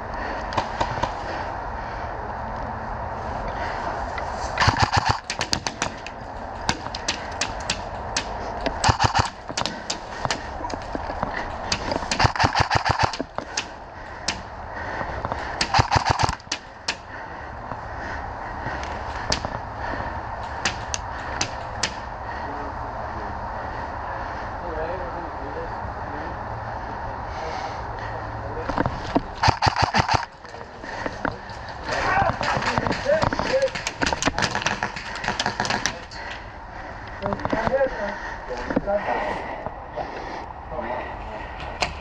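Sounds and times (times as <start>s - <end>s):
airsoft gun rapid bursts: 4.6s - 5.7s, 8.8s - 9.4s, 12.1s - 13.2s, 15.6s - 16.5s, 29.4s - 30.4s, 32.9s - 36.0s
airsoft single shots: 4.6s - 5.8s, 8.8s - 9.4s, 12.1s - 13.2s, 15.6s - 16.6s, 29.4s - 30.3s.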